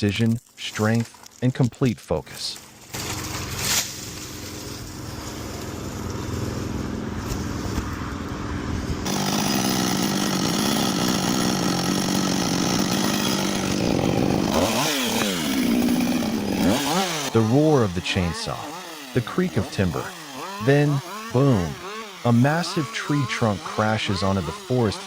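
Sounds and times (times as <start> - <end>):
chainsaw cutting through branch: 2.7 - 7.8, 9.0 - 25.0
chainsaw engine revving: 9.0 - 25.0.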